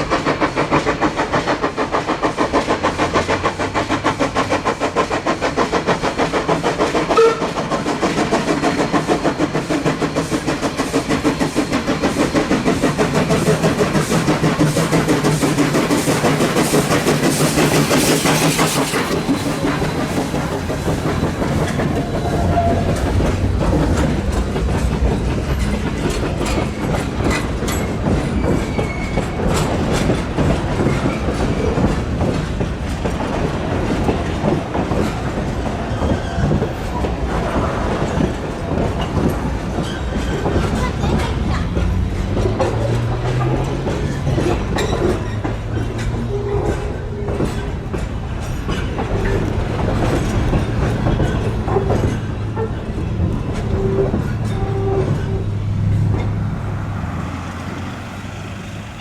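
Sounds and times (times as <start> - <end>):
steam locomotive exhaust beating: 0.0 - 59.0
train wheels clacking over rail joints: 0.0 - 59.0.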